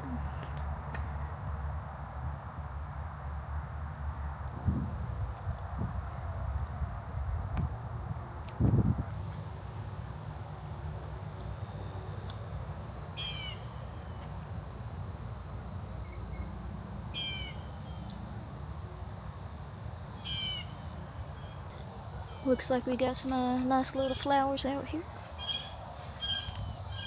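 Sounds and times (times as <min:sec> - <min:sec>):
high drone of insects: 0:00.0 - 0:27.0
wind rumble on microphone: 0:04.6 - 0:09.1.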